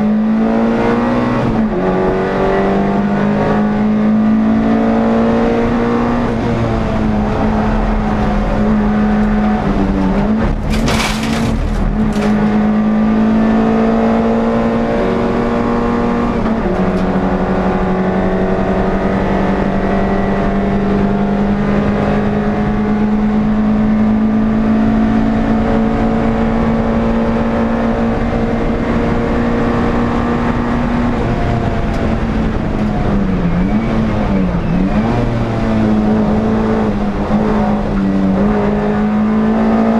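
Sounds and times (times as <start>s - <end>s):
race car engine at high revs: 0.0s - 39.9s
sharp knocks or rattles: 10.5s - 12.6s.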